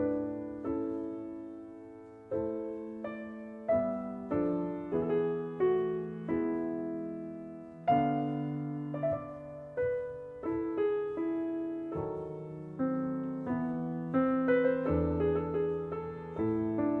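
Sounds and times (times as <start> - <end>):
slow soft piano music: 0.0 - 17.0.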